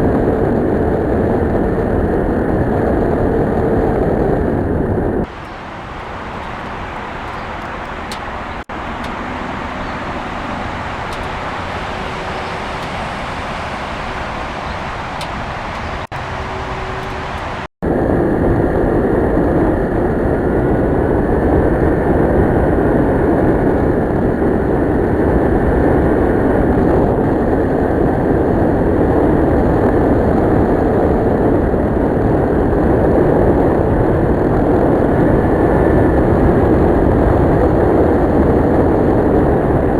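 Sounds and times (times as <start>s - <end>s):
road noise: 0.0s - 39.9s
wind: 0.0s - 39.9s
motorcycle engine running: 5.2s - 17.7s.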